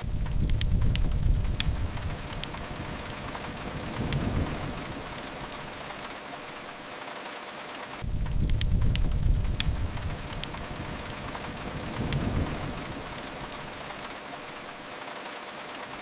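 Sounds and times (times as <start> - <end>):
low rumble: 0.0 - 6.2, 8.0 - 14.7
steady rain hiss: 0.0 - 16.0
wood fire crackling: 0.0 - 16.0.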